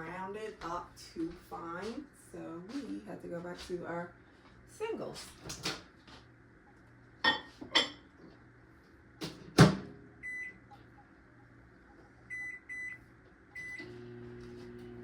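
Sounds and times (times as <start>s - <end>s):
microwave humming: 5.4s - 15.0s.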